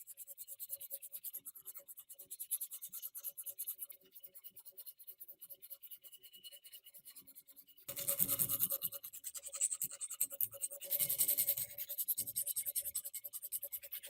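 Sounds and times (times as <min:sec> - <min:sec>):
scratchy rubbing strokes: 0:07.9 - 0:14.0.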